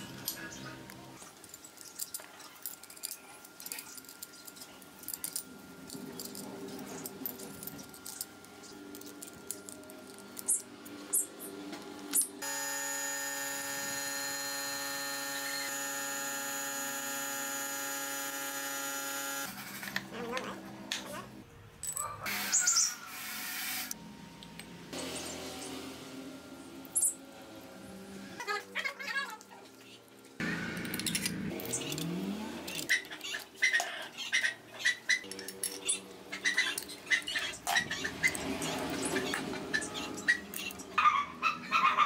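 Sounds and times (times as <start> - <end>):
machine whine: 3.9 - 20.1.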